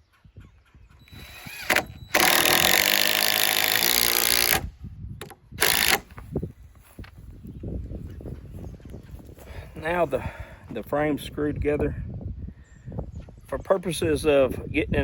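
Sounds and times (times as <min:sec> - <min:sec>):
power drill driving screws: 0:01.1 - 0:06.2.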